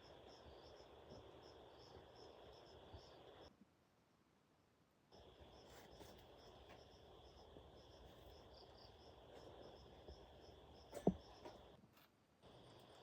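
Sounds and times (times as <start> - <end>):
insect chirps: 0.0 - 3.5, 5.1 - 11.8
insects buzzing: 0.0 - 3.5, 5.1 - 11.8.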